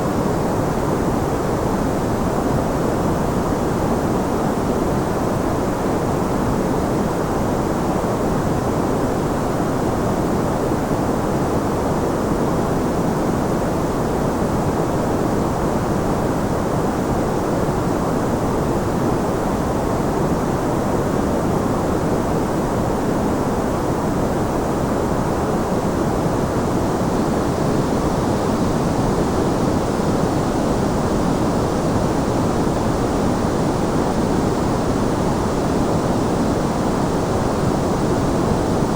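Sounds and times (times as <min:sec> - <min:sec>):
white noise hiss: 0:10.2 - 0:38.9.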